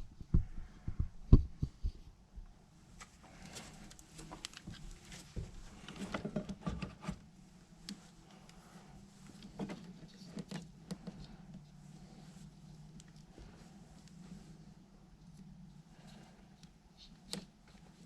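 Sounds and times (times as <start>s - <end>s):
low steady hum: 0.0s - 18.0s
light clicks and rustles of hands: 3.0s - 6.6s, 7.7s - 18.0s.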